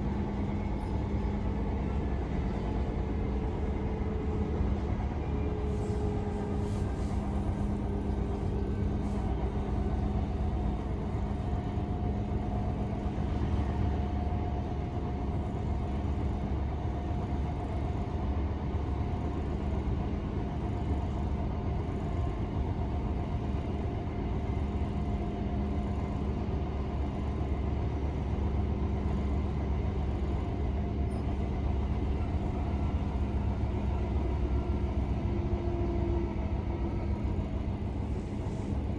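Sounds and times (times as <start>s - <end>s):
train steady hum: 0.0s - 38.9s
train wheels rumbling on track: 0.0s - 38.9s.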